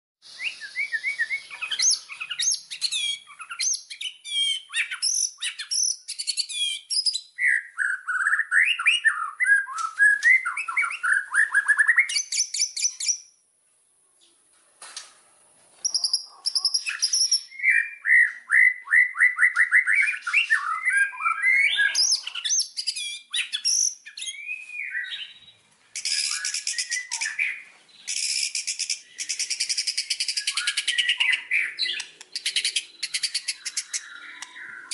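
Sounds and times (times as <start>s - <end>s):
bird singing whistles and trills: 0.2s - 13.4s, 15.8s - 34.9s.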